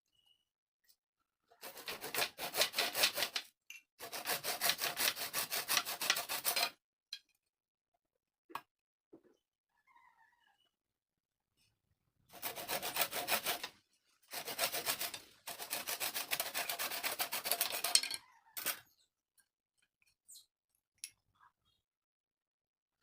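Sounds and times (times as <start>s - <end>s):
wood being rasped by hand: 1.6s - 3.4s, 4.0s - 6.7s, 12.3s - 18.0s.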